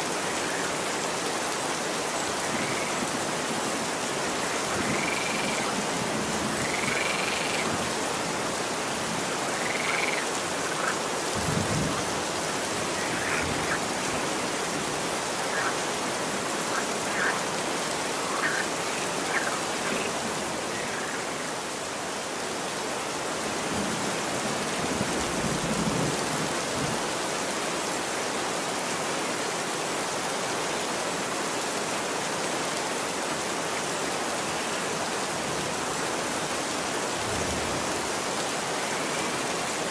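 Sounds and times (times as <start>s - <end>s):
rain falling on a street: 0.0s - 39.9s.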